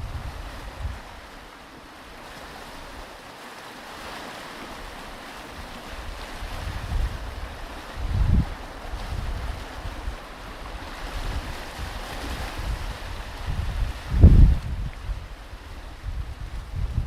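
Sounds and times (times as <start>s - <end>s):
wind buffeting microphone: 0.0s - 1.4s, 4.8s - 17.0s
ocean surf washing on beach: 0.0s - 17.0s.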